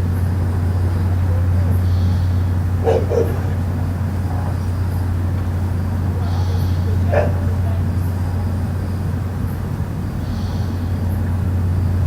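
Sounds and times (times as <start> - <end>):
low droning hum: 0.0 - 12.0
dog barking: 2.8 - 3.6, 7.0 - 7.6.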